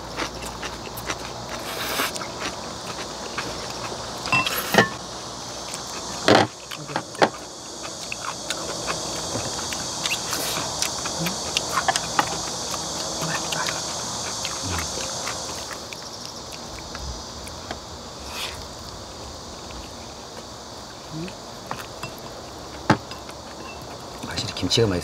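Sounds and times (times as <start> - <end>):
people chewing: 0.0 - 24.7
slurping: 0.1 - 5.0, 5.7 - 17.0
high-pitched hiss: 1.6 - 25.0.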